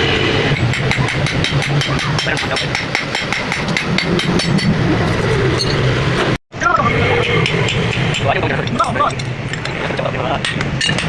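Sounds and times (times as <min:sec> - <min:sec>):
engine-like hum: 0:00.0 - 0:11.0
hammer on metal: 0:00.6 - 0:04.8.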